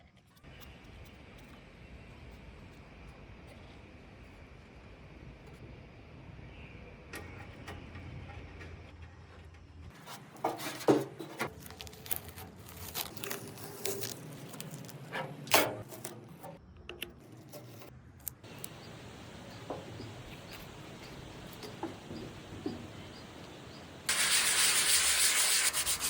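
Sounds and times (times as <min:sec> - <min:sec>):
hand sanding metal: 0:24.1 - 0:26.0.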